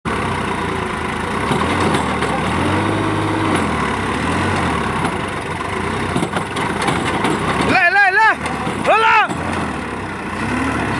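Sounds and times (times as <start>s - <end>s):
tractor diesel engine running: 0.1s - 10.9s.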